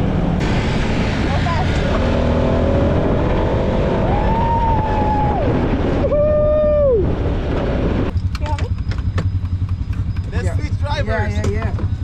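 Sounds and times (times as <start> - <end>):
off-road vehicle running: 0.0 - 12.0
wind on microphone: 0.2 - 8.9
whining drive tone: 1.5 - 12.0.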